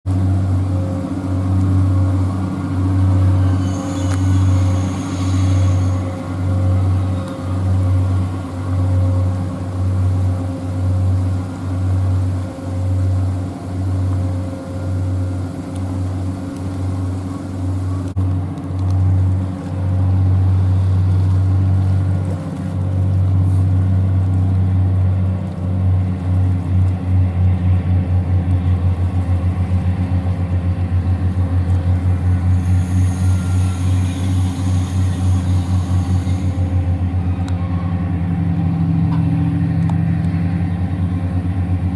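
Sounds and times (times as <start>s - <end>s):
boat diesel engines droning: 0.0s - 41.9s.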